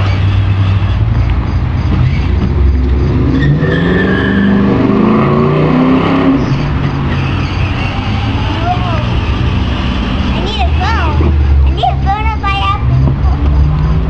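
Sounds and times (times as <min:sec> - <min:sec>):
toy ride-on truck motor drone: 0:00.0 - 0:02.8, 0:07.1 - 0:12.5.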